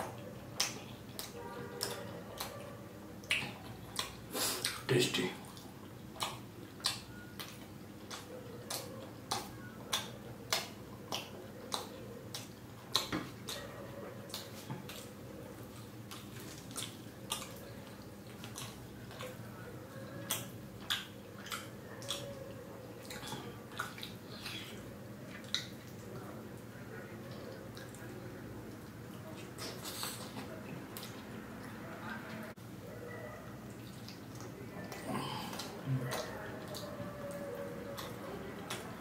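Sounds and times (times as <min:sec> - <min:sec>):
wet lip-smacking clicks: 0:00.0 - 0:02.6, 0:03.2 - 0:04.8, 0:05.5 - 0:13.7, 0:14.3 - 0:15.1, 0:15.8 - 0:19.4, 0:20.2 - 0:26.1, 0:37.9 - 0:39.0
close chewing: 0:00.0 - 0:39.0.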